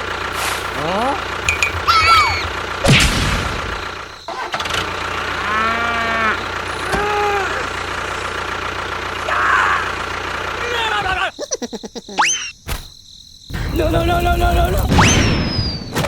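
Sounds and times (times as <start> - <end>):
steady engine hum: 0.0 - 12.0
cow mooing: 5.2 - 7.7.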